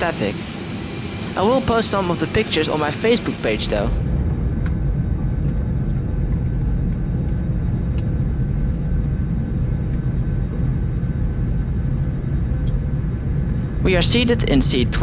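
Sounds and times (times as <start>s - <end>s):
faint steady whine: 0.0s - 4.5s, 11.8s - 15.0s
jet airliner rumble: 0.0s - 15.0s.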